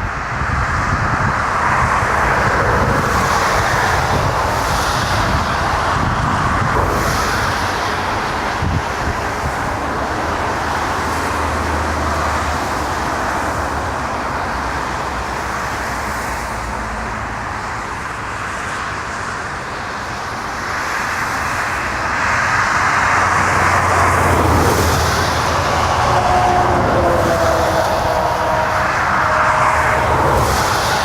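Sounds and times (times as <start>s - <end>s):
jet airliner engines: 0.0s - 31.0s.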